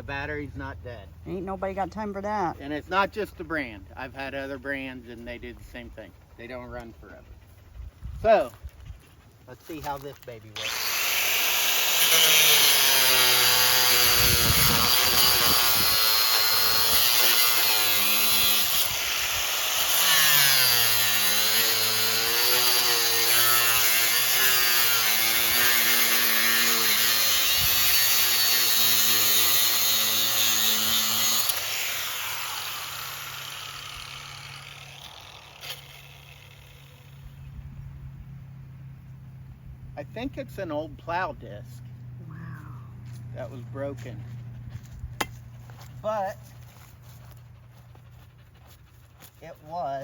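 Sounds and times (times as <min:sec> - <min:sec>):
grinder disc spinning down: 0:10.6 - 0:23.8
angle grinder cutting steel: 0:10.6 - 0:37.4.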